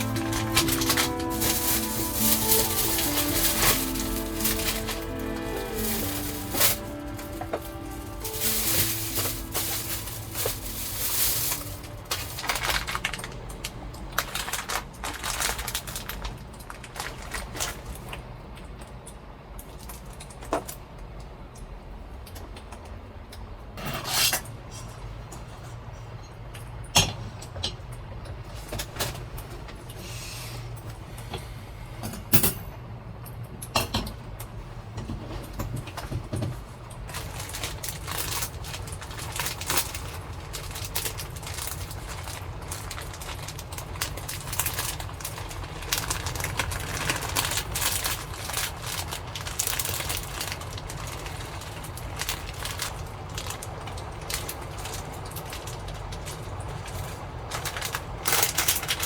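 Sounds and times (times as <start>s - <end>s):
heavy rain on a roof: 0.0s - 18.1s, 36.8s - 59.0s.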